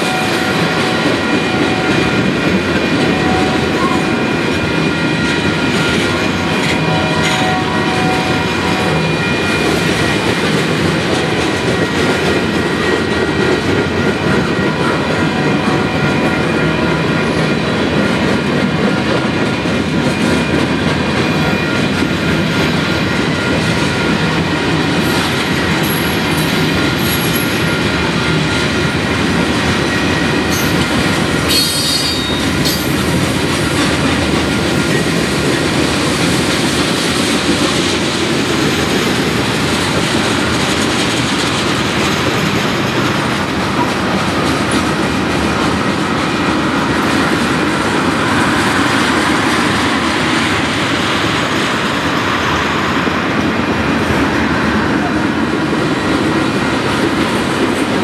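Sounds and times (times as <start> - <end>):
steel wheels rumbling on rail: 0.0 - 58.0
high wheel squeal: 30.0 - 34.0.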